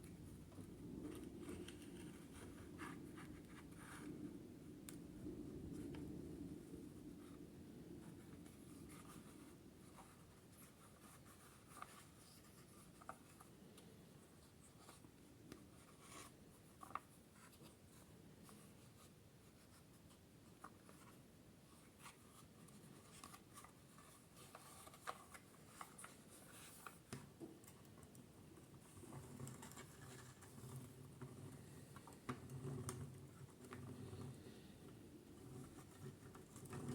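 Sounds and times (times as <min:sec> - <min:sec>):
faint scratching: 0:00.1 - 0:04.6, 0:28.5 - 0:36.9.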